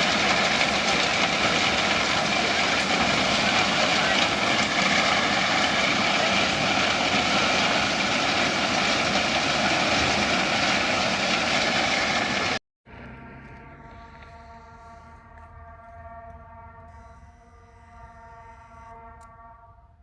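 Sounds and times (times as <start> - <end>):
freight train rolling on track: 0.0 - 12.6
steady tones: 0.0 - 12.6.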